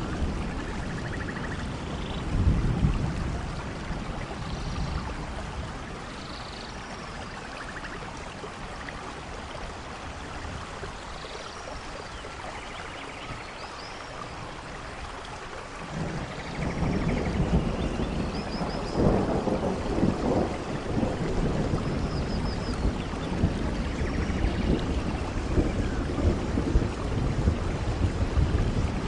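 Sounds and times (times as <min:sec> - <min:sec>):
thunder rumble: 0:00.0 - 0:05.8, 0:15.8 - 0:29.0
steady rain: 0:00.0 - 0:29.0.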